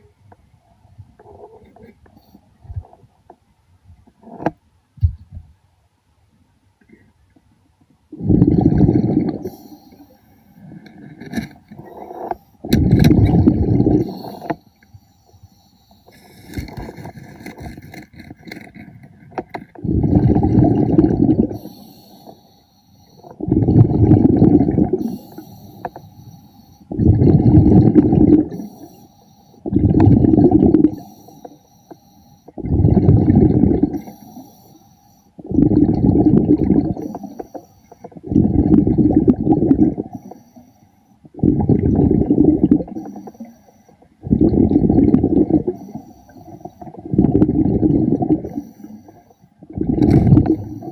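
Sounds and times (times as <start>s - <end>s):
exhaled bubbles underwater: 8.1s - 9.8s, 11.8s - 14.6s, 19.7s - 21.9s, 23.2s - 25.8s, 26.9s - 29.0s, 29.6s - 31.4s, 32.6s - 34.4s, 35.4s - 40.3s, 41.2s - 43.5s, 44.1s - 50.9s
diver inhaling: 24.9s - 27.8s.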